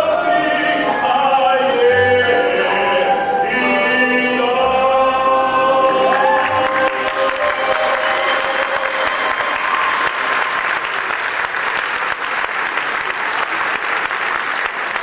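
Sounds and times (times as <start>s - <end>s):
group singing: 0.0s - 9.5s
crowd applauding: 6.0s - 15.0s.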